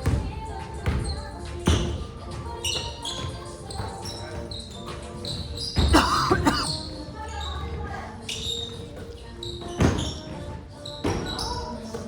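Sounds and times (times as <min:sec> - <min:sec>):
sneakers squeaking: 0:00.0 - 0:12.0.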